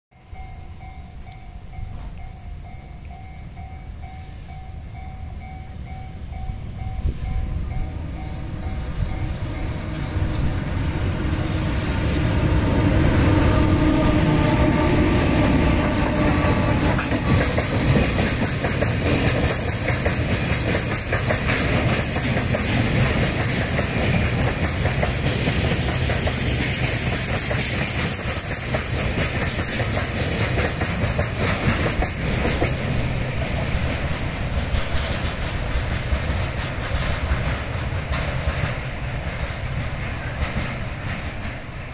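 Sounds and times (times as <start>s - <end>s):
electric locomotive passing: 0.1s - 41.9s
train wheels clacking over rail joints: 11.9s - 41.9s.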